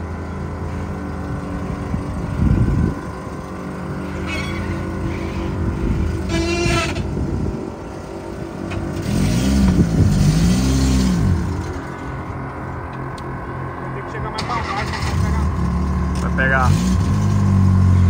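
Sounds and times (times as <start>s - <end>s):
pickup engine running: 0.0s - 18.0s
brief high squeal: 4.2s - 5.5s.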